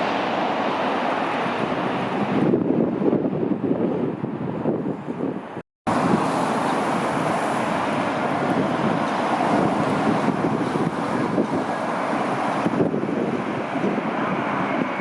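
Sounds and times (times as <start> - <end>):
jet airliner rushing: 0.0 - 15.0
wind buffeting microphone: 0.0 - 15.0.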